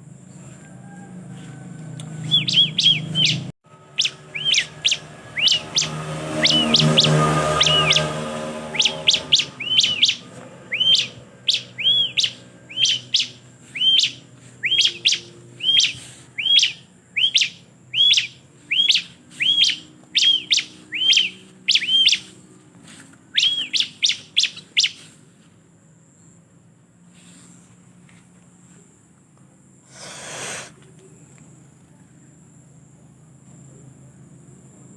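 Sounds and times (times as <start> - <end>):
bird chirping: 2.0 - 22.5, 23.2 - 25.2.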